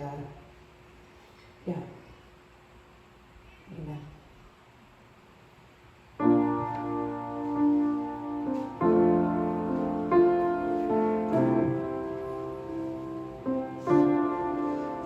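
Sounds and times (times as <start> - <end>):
piano playing slow chords: 6.2 - 15.0.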